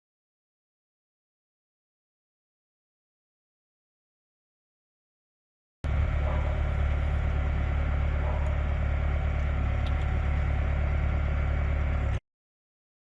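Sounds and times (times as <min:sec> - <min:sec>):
motor idling hum: 0:05.8 - 0:12.2.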